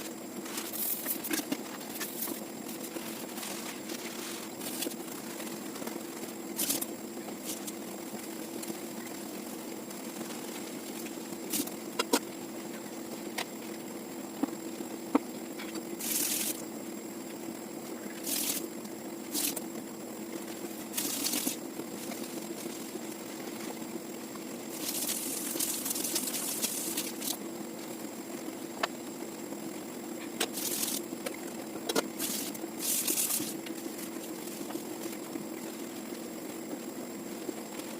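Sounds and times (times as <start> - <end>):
steady hum: 0.0 - 37.9
short hissing bursts: 16.0 - 16.6, 18.2 - 18.7.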